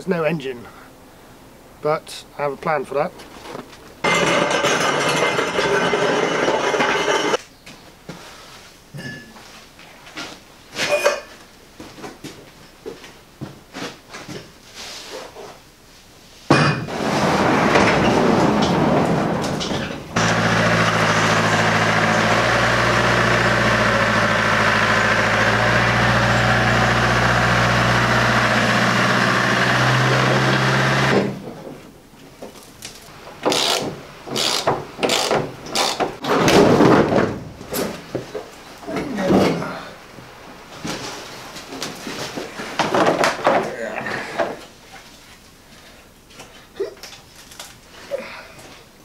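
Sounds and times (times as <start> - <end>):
workshop knocks and clanks: 3.5 - 7.4, 16.5 - 29.0, 33.3 - 38.5, 42.2 - 43.7
car engine running: 20.2 - 31.3.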